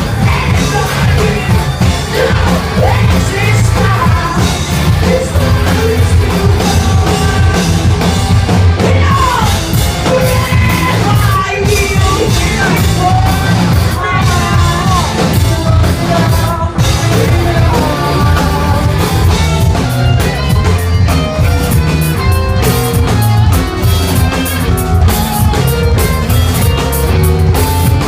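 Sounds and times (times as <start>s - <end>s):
person singing: 0.0s - 20.7s
drum kit: 0.0s - 28.0s
electric guitars: 0.0s - 28.0s.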